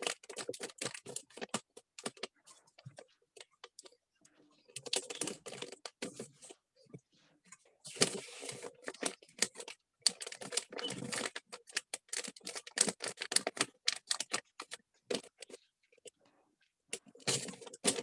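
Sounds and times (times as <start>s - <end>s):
gift wrapping rustling and crinkling: 0.0s - 3.5s, 7.9s - 15.6s.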